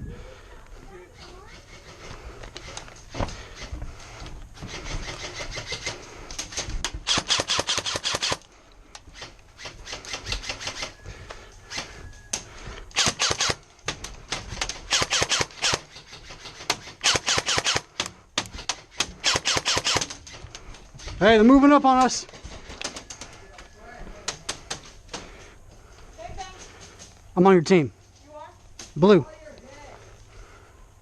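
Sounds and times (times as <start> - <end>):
airsoft guns firing full-auto bursts: 7.0 - 8.4, 12.9 - 13.6, 14.8 - 18.2, 19.0 - 20.2.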